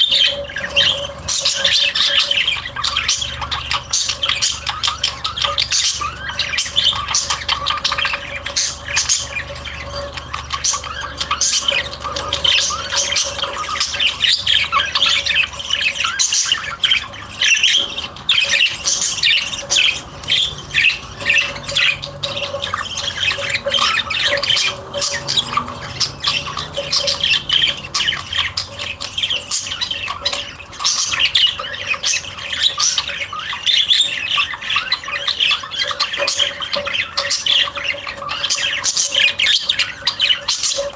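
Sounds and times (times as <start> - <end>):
birds chattering and squawking: 0.0 - 40.9.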